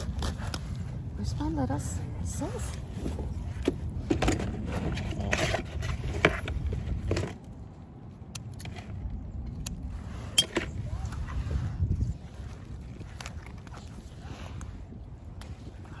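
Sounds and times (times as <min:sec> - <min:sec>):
scraping and rustling handling noises: 0:00.0 - 0:07.8.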